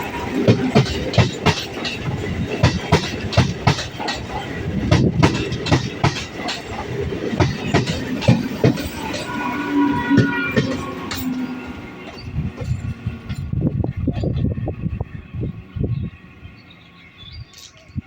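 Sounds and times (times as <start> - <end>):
electric train passing at speed: 0.0 - 18.0
wheels clattering over rail joints: 0.2 - 9.4.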